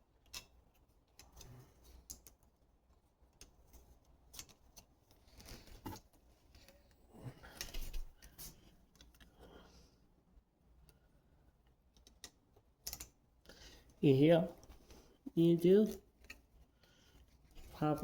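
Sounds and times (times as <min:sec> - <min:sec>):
small parts clicking: 0:00.1 - 0:02.6, 0:11.6 - 0:13.8.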